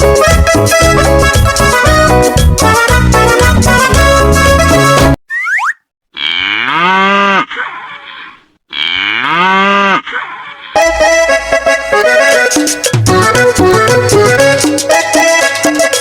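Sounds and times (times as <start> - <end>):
upbeat children's song music: 0.0 - 5.2, 10.8 - 16.0
cartoon boing: 5.3 - 6.8
cattle mooing: 6.2 - 7.6, 8.7 - 10.2.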